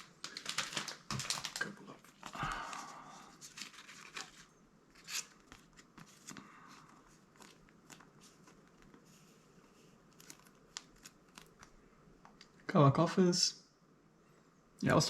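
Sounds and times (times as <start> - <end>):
cards tapped and sliding: 5.0 - 6.5, 7.3 - 9.1.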